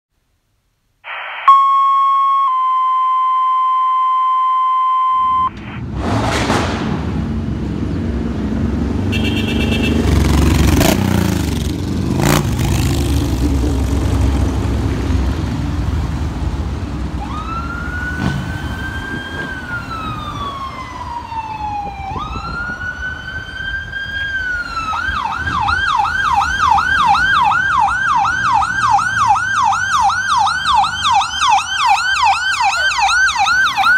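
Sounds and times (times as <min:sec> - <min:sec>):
siren wailing and yelping: 0:01.1 - 0:05.8, 0:17.2 - 0:33.9
two steady pitched tones: 0:01.1 - 0:05.8
engine bangs: 0:05.5 - 0:21.3.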